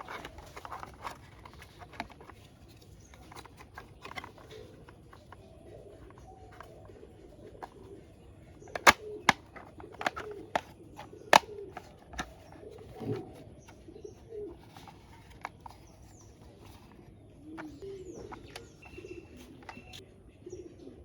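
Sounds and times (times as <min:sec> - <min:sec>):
plastic toy parts clicking: 0:00.0 - 0:02.4, 0:03.1 - 0:04.5, 0:08.7 - 0:10.7
low cooing calls: 0:03.0 - 0:21.0.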